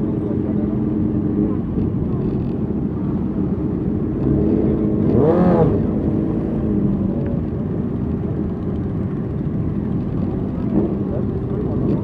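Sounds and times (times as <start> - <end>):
motorcycle engines rumbling: 0.0 - 12.0
motorcycle engine revving: 4.2 - 7.6.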